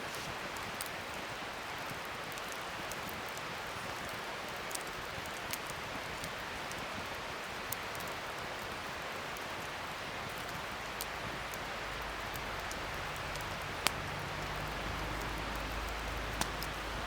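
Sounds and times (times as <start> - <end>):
wood fire crackling: 0.0 - 17.0
burning wood popping: 10.3 - 17.0.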